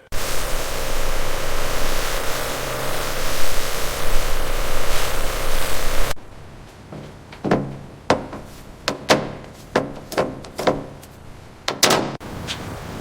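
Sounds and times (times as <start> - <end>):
steady hiss: 0.0 - 6.2
sharp knocks and thunks: 7.0 - 11.0, 11.6 - 12.2.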